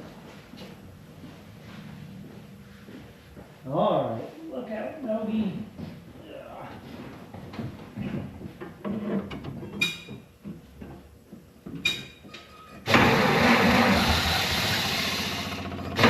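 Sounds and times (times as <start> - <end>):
car engine starting and running: 12.9 - 16.0.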